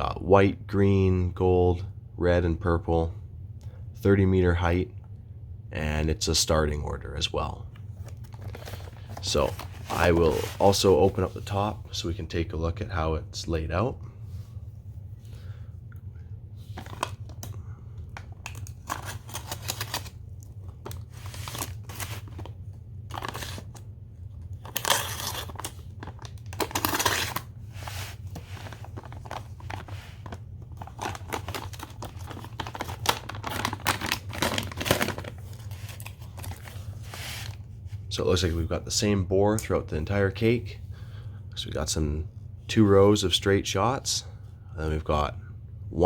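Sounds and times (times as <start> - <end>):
steady low hum: 0.0 - 46.0
paper tearing and crumpling: 18.6 - 20.2, 20.8 - 22.5, 23.1 - 23.8, 24.6 - 37.6.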